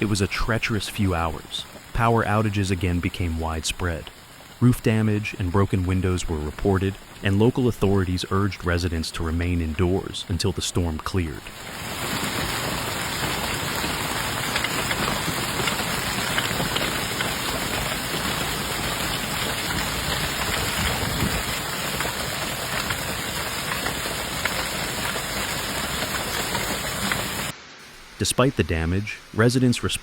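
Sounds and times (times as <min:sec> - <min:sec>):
heavy rain falling: 0:00.0 - 0:27.7
drops ticking on hard surfaces: 0:12.0 - 0:27.5.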